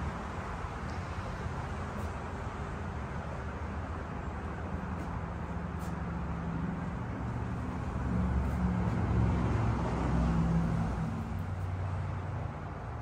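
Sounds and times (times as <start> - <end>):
road traffic rumble: 0.0 - 13.0
vehicle passing: 5.6 - 13.0.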